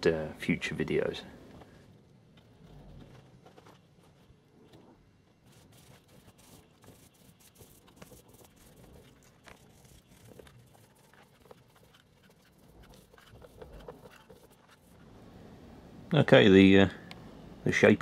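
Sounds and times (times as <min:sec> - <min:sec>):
tool scraping wet plaster: 0:05.5 - 0:15.1.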